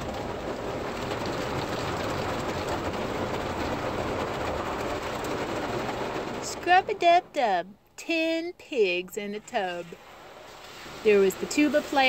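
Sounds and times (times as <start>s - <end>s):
car wash brushes scrubbing: 9.5s - 12.0s.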